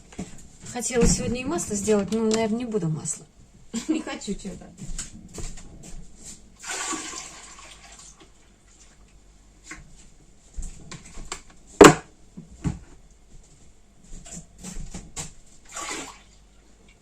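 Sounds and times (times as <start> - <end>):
liquid pouring: 6.6 - 8.9, 15.7 - 16.4
sharp knock: 11.8 - 12.1.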